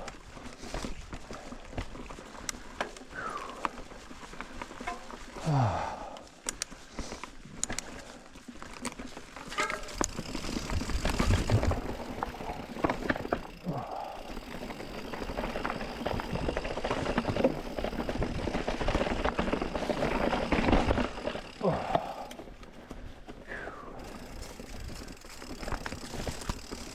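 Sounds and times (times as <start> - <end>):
bike rattling over rocks: 0.0 - 26.9
rider grunting: 5.4 - 6.4, 11.1 - 15.2, 21.2 - 22.5.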